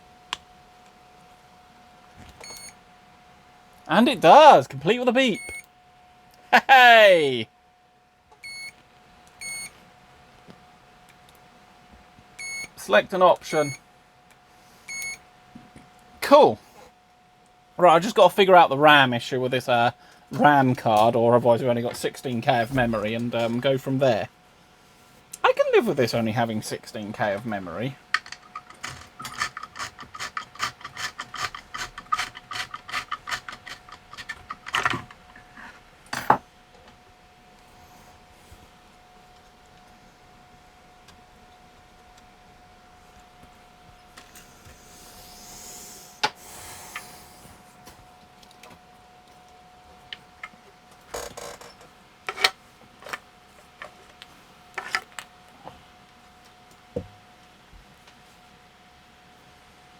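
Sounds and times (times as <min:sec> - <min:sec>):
faint high whine: 0:00.0 - 0:10.9, 0:11.5 - 0:16.8
faint high tone hum: 0:00.0 - 0:29.4, 0:34.2 - 0:59.9
clicks and knocks of small parts: 0:28.1 - 0:35.4.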